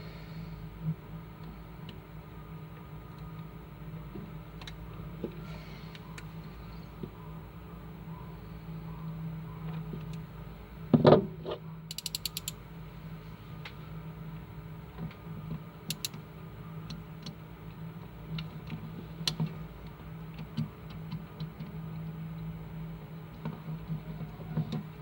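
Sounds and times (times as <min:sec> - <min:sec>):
steady low hum: 0:00.0 - 0:25.0
mechanical clicking: 0:11.9 - 0:12.6, 0:15.9 - 0:16.2.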